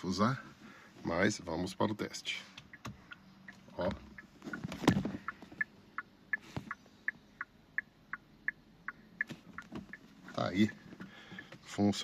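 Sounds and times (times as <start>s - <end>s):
turn signal ticking: 1.5s - 12.0s.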